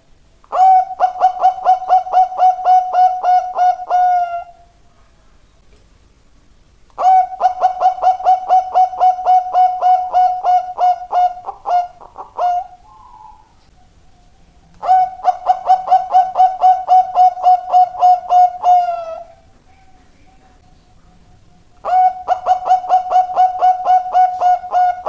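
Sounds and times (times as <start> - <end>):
dove cooing: 0.5 - 5.2, 7.0 - 25.0.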